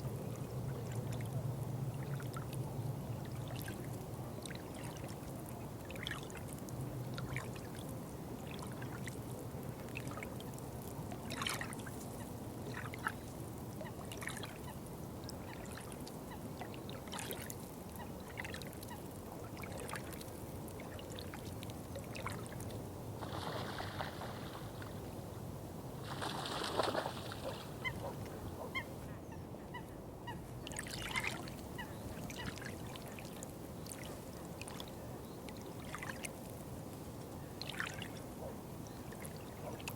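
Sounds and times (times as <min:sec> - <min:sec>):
water trickling: 0:30.6 - 0:36.7.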